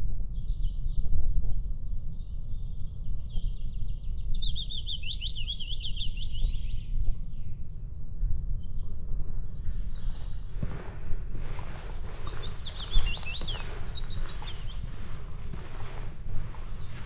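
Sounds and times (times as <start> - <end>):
wind rumble on microphone: 0.0 - 17.0
faint bird chirps: 8.6 - 17.0
soft footsteps on path: 9.2 - 17.0.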